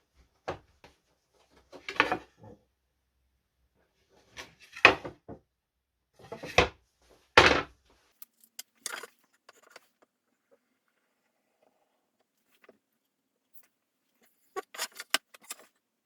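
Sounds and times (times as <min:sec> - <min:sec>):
wooden knocks and scrapes: 0:08.5 - 0:10.2, 0:13.5 - 0:15.7.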